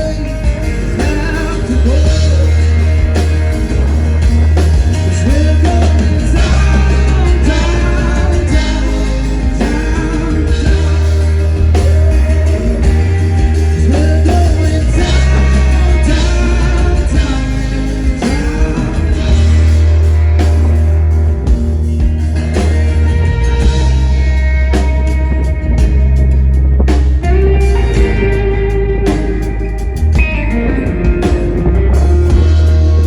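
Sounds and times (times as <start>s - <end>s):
man singing: 0.0s - 4.0s, 4.8s - 20.4s
guitar: 0.0s - 33.0s
heavy bass: 0.0s - 33.0s.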